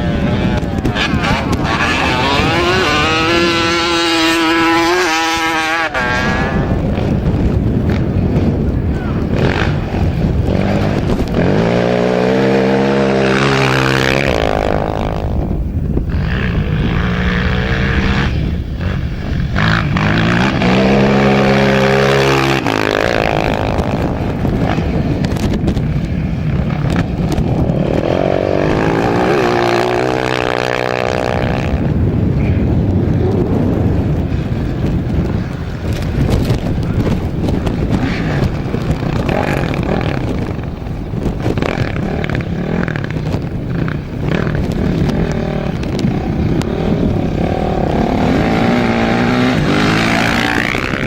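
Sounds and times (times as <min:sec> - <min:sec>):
racing engines accelerating: 0:00.0 - 0:34.1.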